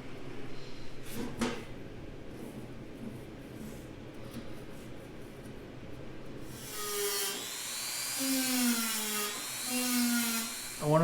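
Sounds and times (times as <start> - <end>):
rotary tool whine: 6.6 - 11.0.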